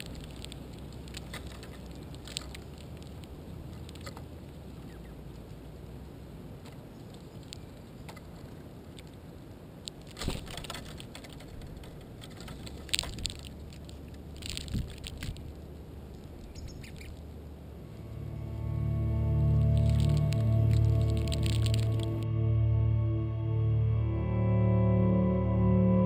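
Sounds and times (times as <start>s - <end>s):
scratchy clicks of bird feet: 0.0s - 5.8s, 6.6s - 17.3s, 19.5s - 22.2s
low steady hum: 0.0s - 26.0s.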